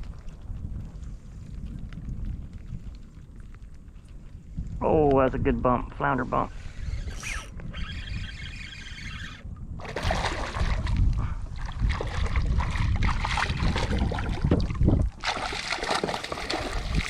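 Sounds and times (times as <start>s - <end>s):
wind rumble on microphone: 0.0s - 17.0s
water splashing against kayak: 8.0s - 17.0s.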